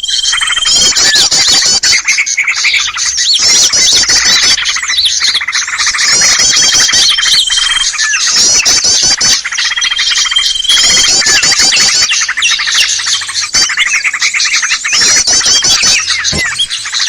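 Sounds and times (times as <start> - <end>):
small birds chattering and chirping: 0.0 - 17.0
long even bird trill: 9.5 - 17.0.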